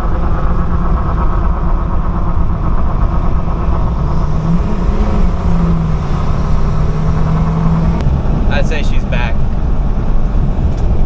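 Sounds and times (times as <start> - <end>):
diesel engine rumble: 0.0 - 11.0
road and wind noise: 0.0 - 11.0.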